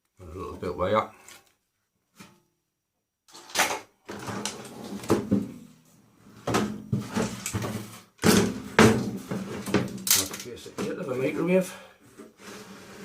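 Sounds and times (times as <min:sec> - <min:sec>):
microwave parts clattering: 0:06.5 - 0:11.0.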